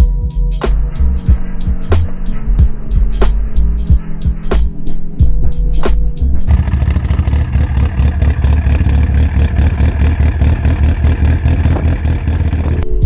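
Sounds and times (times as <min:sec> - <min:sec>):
car engine rumbling: 0:06.4 - 0:12.9.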